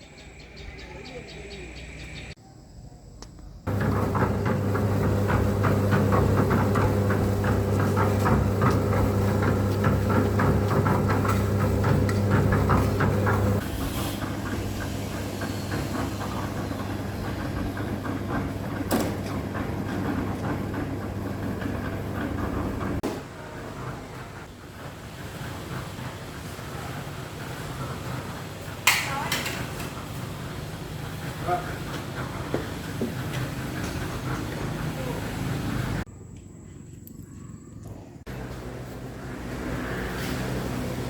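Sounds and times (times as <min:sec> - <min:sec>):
engine humming: 0:03.7 - 0:23.0, 0:25.4 - 0:36.2, 0:38.2 - 0:41.0.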